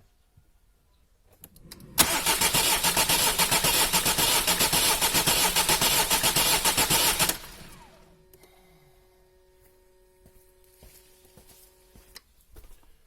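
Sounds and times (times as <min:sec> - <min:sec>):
diesel engine cranking on starter: 0:01.5 - 0:08.2.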